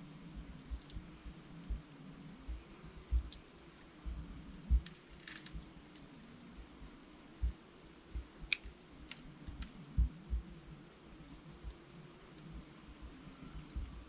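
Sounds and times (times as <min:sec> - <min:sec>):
wood fire crackling: 0:00.0 - 0:14.0
soft low thuds: 0:09.9 - 0:10.6.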